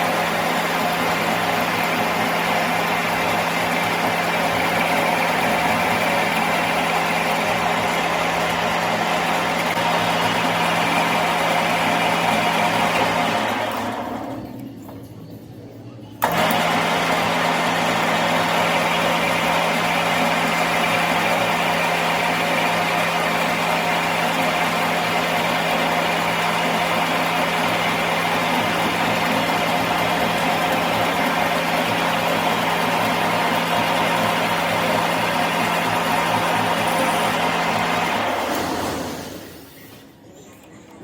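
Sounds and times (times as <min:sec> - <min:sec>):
workshop machine humming: 0:00.0 - 0:41.0.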